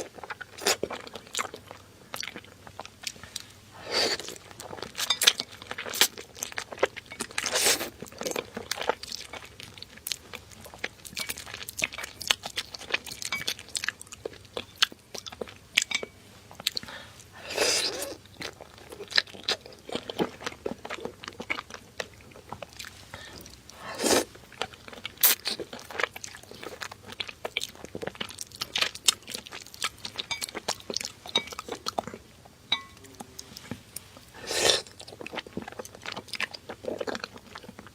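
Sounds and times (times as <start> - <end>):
chewing and crunching seafood: 0.0 - 37.9
loud mouth sounds: 34.4 - 34.9.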